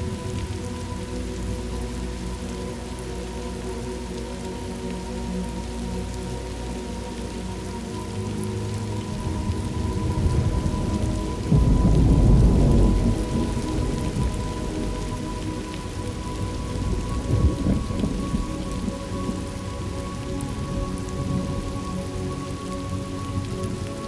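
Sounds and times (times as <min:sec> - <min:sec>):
rain falling steadily: 0:00.0 - 0:24.0
thunder rumbling: 0:09.1 - 0:21.7.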